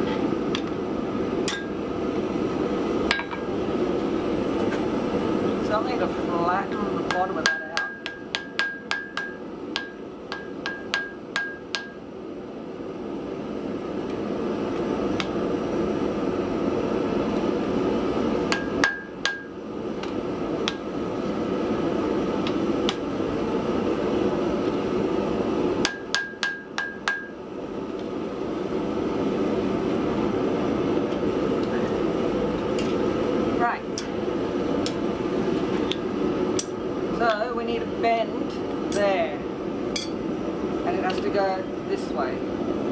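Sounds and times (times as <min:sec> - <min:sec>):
hammer ringing on anvil: 0:07.1 - 0:12.0, 0:18.5 - 0:19.6, 0:25.8 - 0:27.4, 0:40.0 - 0:40.2.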